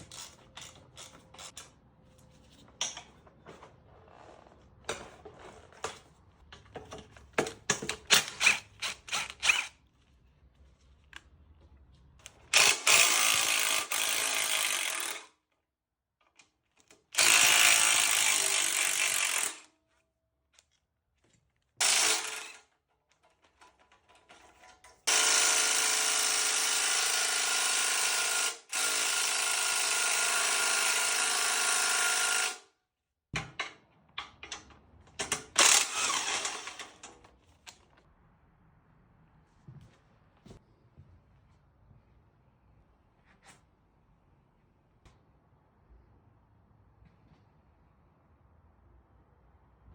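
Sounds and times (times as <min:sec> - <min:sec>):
power drill motor whine: 0:08.4 - 0:09.7, 0:35.6 - 0:36.9.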